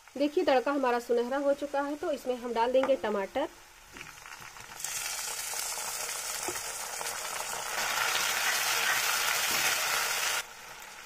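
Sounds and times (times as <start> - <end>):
tomatoes sizzling in hot oil: 0.0 - 11.0.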